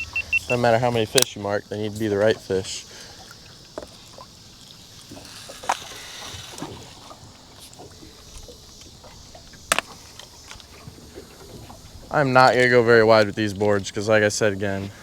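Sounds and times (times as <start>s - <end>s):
low steady hiss: 0.0s - 15.0s
fishing gear knocks and clicks: 5.0s - 10.7s.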